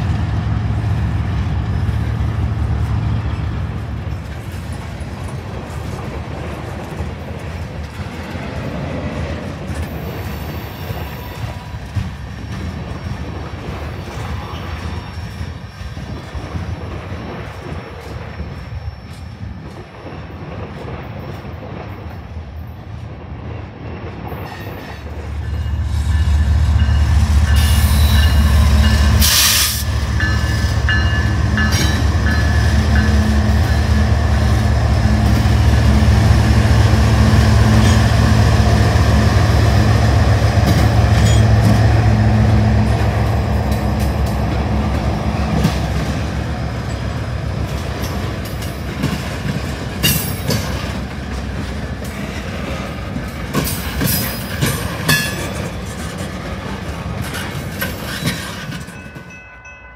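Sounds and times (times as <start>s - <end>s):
diesel locomotive engines rumbling: 0.0s - 59.9s
freight cars rolling on rails: 0.0s - 59.9s
high wheel squeal: 18.1s - 19.6s.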